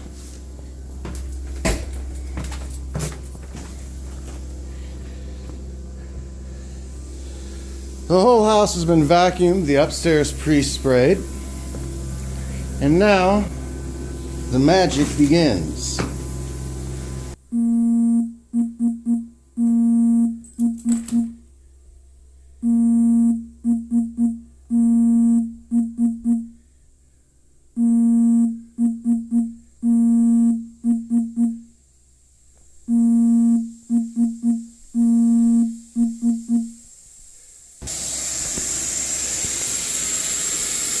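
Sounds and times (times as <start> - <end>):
repeating electronic tone: 17.5 - 21.4, 22.6 - 26.5, 27.8 - 31.7, 32.9 - 36.8.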